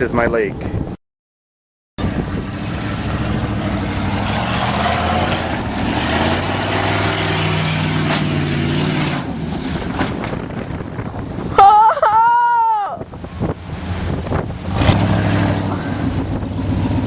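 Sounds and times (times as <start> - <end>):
steady rushing noise: 2.0 - 11.6, 13.0 - 17.0
truck engine running hard: 2.0 - 11.6, 13.0 - 17.0.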